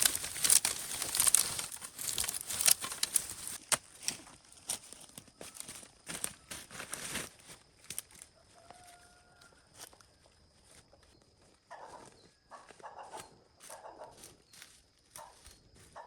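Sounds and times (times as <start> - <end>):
rustling handling noises: 0.0 - 8.3
chickens calling: 11.7 - 14.1.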